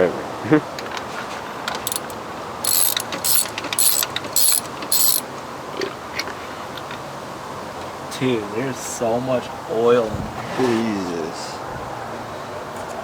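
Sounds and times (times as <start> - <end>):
ratchet wrench clicking: 1.8 - 5.2.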